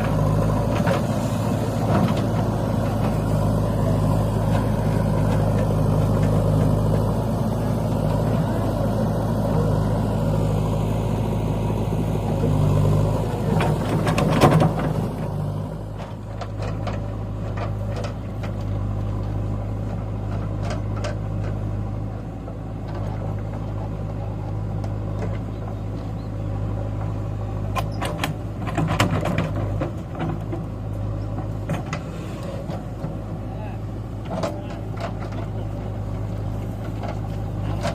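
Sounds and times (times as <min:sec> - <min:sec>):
diesel engine running: 0:00.0 - 0:37.9
clanks and knocks: 0:13.5 - 0:15.0, 0:16.0 - 0:18.8, 0:27.7 - 0:33.2, 0:34.2 - 0:36.2.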